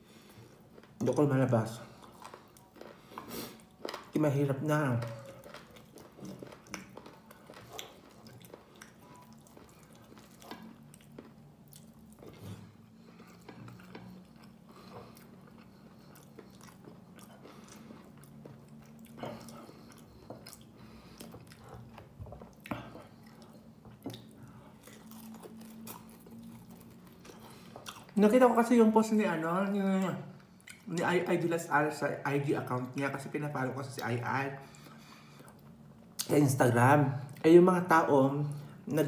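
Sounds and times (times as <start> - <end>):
faint low hum: 0.0 - 39.0
chewing and mouth smacks: 1.9 - 4.2, 5.0 - 28.6, 30.0 - 30.9.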